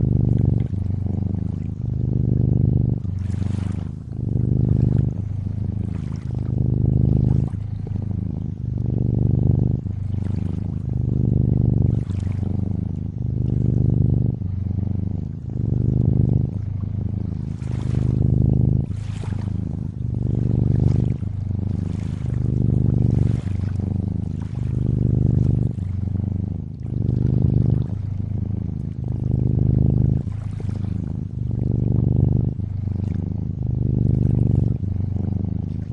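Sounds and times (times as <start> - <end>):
cat purring: 0.0 - 35.9
water trickling and lapping: 0.2 - 8.8, 11.9 - 13.6, 17.5 - 29.2, 30.0 - 31.7, 32.8 - 34.9, 35.6 - 35.9.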